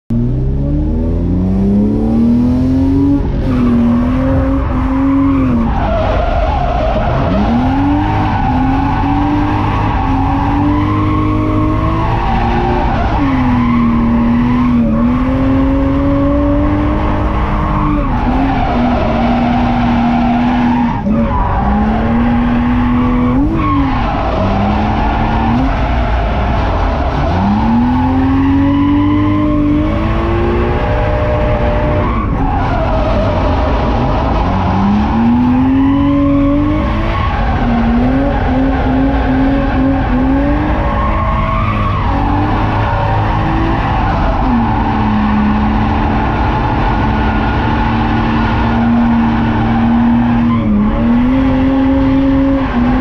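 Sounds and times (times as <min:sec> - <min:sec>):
car engine revving: 0:00.1 - 0:53.0
tyre squeal: 0:03.5 - 0:30.0.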